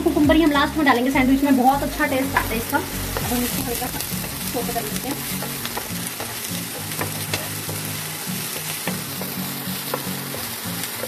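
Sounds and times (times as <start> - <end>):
garlic and chillies sizzling in pan: 0.0 - 11.0
spatula scraping and tapping pan: 3.1 - 11.0.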